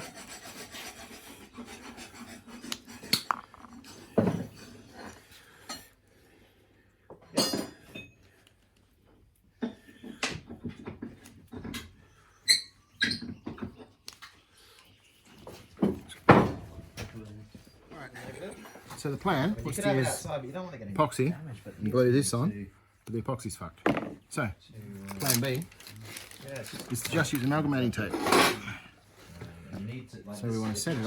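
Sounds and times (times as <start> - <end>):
small objects clicking and clinking: 3.1 - 4.2, 25.1 - 27.6.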